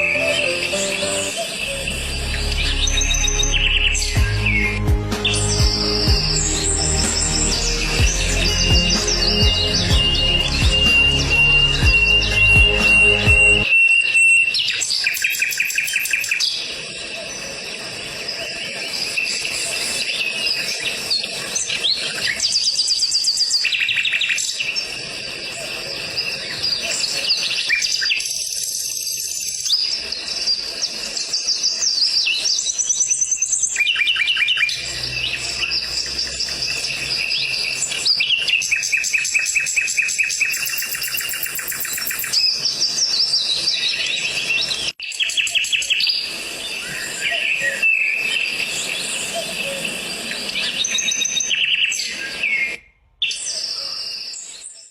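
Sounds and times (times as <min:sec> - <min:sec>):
sparrows chirping: 0:00.0 - 0:13.7, 0:32.2 - 0:45.8.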